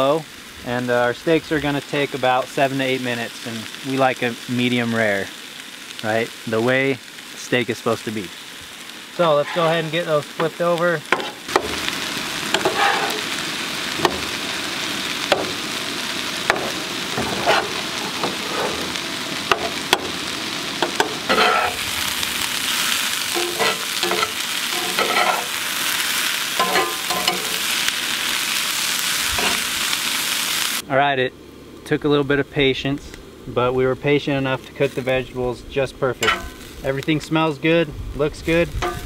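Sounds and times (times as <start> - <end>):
meat sizzling on a griddle: 0.0 - 39.0
vegetables frying in a skillet: 0.0 - 39.0
metal spatula scraping and tapping: 12.6 - 13.2, 16.5 - 18.8, 20.8 - 21.8, 23.4 - 25.5, 26.6 - 27.5, 36.2 - 36.7.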